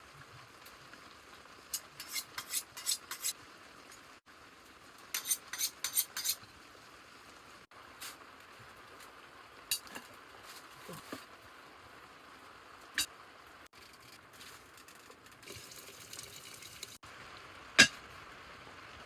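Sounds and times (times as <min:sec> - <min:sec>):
metal utensil clinking on pot: 0:17.8 - 0:18.0.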